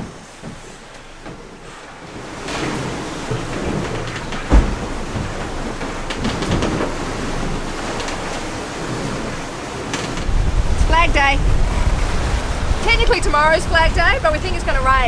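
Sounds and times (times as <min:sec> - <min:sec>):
wind and water rushing: 0:00.0 - 0:15.0
heavy low thump: 0:10.2 - 0:15.0.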